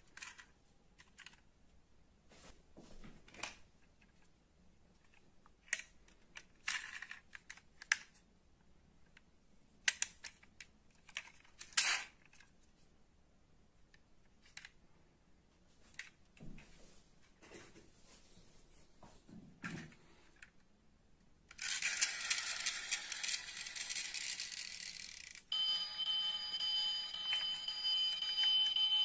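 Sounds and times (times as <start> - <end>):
metal model cars clicking: 21.5 - 25.5.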